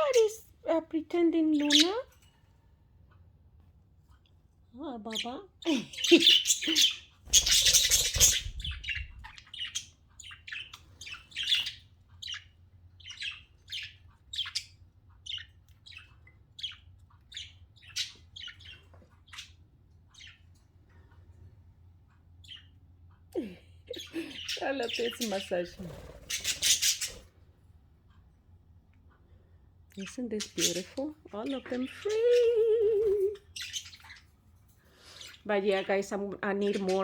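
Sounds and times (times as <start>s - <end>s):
budgerigars chirping: 1.5s - 2.2s, 5.1s - 20.6s, 23.9s - 27.3s, 30.0s - 32.5s, 33.4s - 34.3s, 34.9s - 37.0s
wings flapping: 7.3s - 8.8s.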